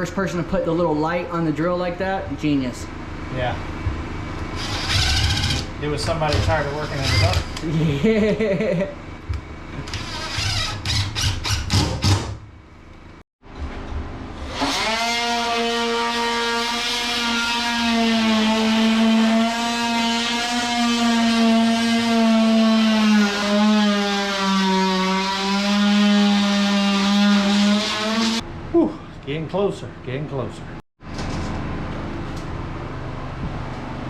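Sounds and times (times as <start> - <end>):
power tool motor running: 4.4 - 7.7, 9.8 - 12.3, 14.4 - 28.4.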